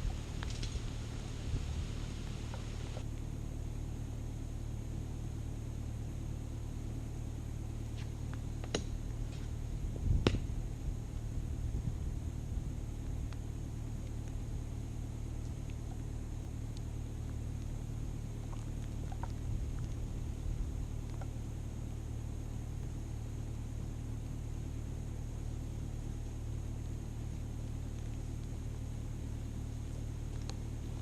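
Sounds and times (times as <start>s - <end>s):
low engine-like rumble: 0.0s - 31.0s.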